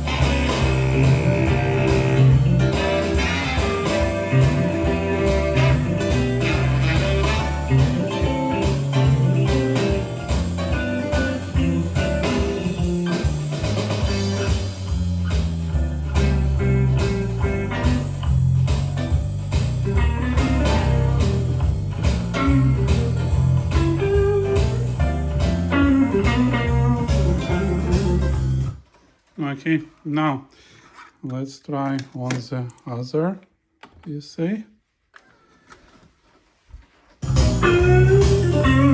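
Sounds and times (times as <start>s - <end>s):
blues music with electric guitar: 0.0s - 28.8s, 37.2s - 38.9s.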